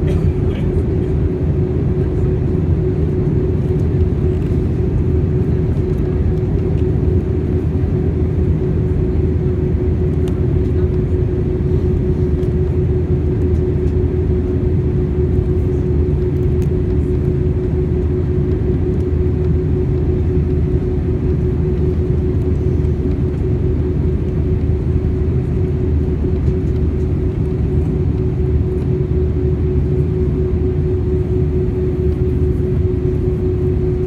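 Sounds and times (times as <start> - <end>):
airplane cabin engine drone: 0.0 - 34.0.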